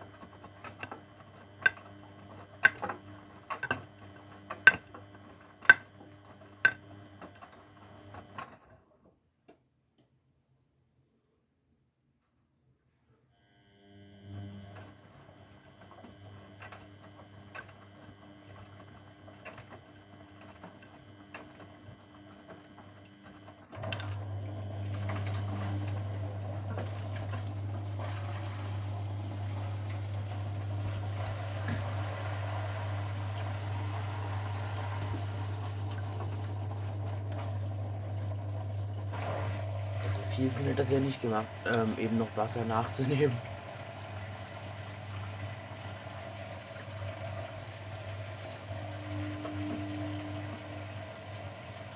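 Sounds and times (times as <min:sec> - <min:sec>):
washing machine quiet hum: 0:00.0 - 0:51.9
water valve hum: 0:20.2 - 0:51.9
rushing water: 0:24.2 - 0:49.3.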